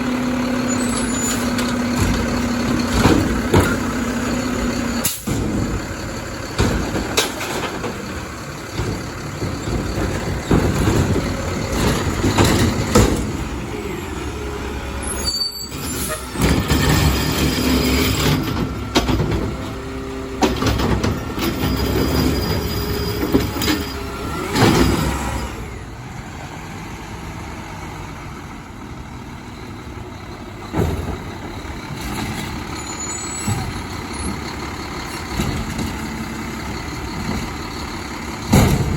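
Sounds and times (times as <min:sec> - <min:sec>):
refuse truck engine running: 0:00.0 - 0:38.9
metal clanks and knocks: 0:01.1 - 0:13.7, 0:15.7 - 0:25.1, 0:30.6 - 0:32.8, 0:33.4 - 0:38.9
squealing tones: 0:15.0 - 0:18.2.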